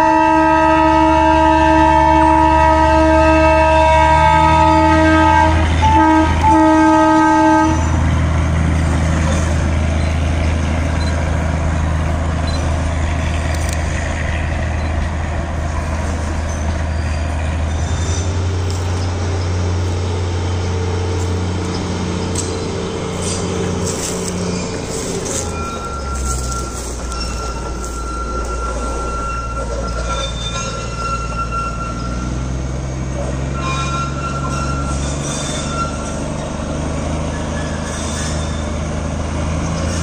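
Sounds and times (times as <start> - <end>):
train horn blast: 0.0 - 8.2, 33.4 - 36.2
train running rumble: 0.0 - 40.0
steady drone: 10.8 - 33.6.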